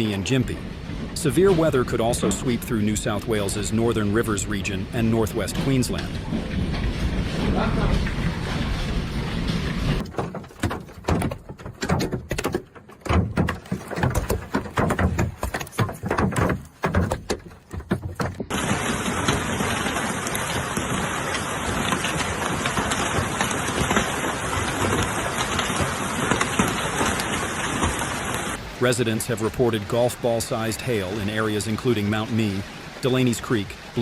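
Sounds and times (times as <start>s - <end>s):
heavy rain hissing: 0.0s - 10.0s, 18.5s - 34.0s
hailstones pelting hard surfaces: 0.6s - 34.0s.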